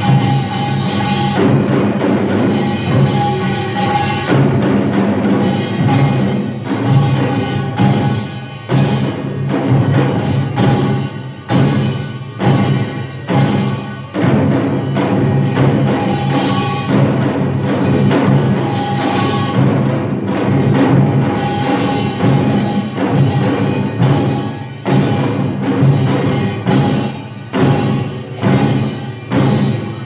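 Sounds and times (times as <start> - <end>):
small gongs ringing: 0.0 - 19.8
drums in fast rhythm: 0.0 - 30.0.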